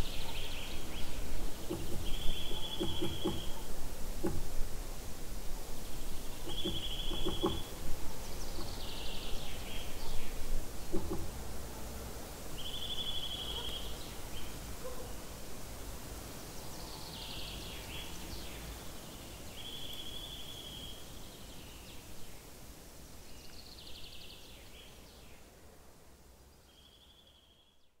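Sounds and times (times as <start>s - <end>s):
birds giving short notes: 0.0s - 4.6s
bird trilling: 0.8s - 3.6s.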